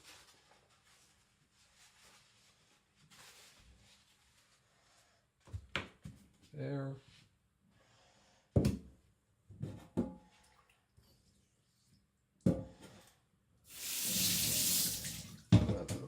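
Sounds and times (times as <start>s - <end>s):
tap water running: 13.7s - 15.5s.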